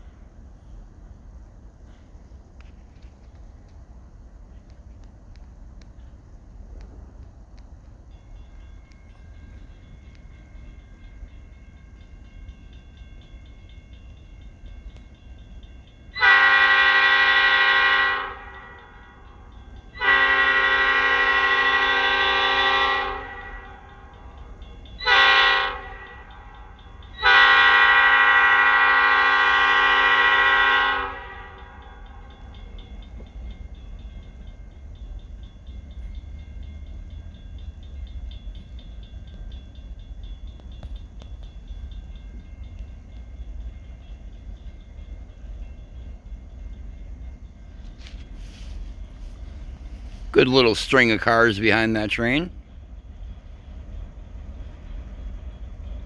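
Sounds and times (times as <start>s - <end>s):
train rumbling: 0.0s - 56.0s
diesel locomotive horn blasts: 16.2s - 19.0s, 20.0s - 23.8s, 25.0s - 26.3s, 27.2s - 31.8s.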